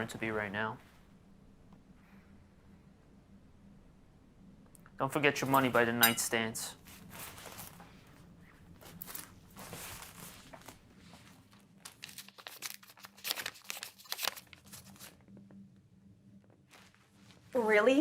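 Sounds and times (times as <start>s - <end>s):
crinkling and rustling: 6.8s - 15.6s.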